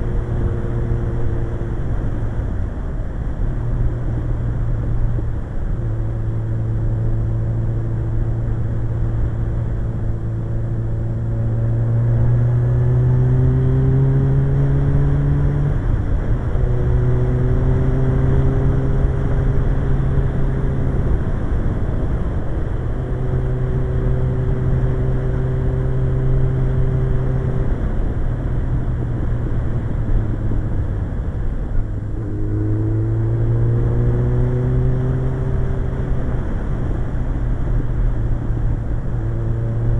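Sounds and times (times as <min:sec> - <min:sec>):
motorcycle engine revving: 0:31.8 - 0:37.2.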